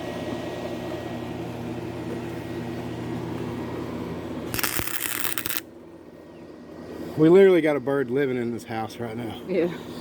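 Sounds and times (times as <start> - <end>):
steady electrical hum: 0.0 - 10.0
welding arc crackling sizzle: 4.5 - 5.7.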